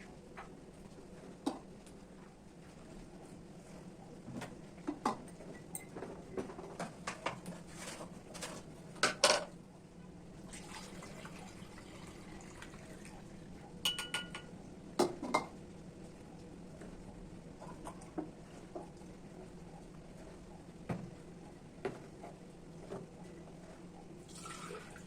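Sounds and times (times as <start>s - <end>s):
dishes clattering: 8.4s - 9.5s, 13.8s - 15.6s.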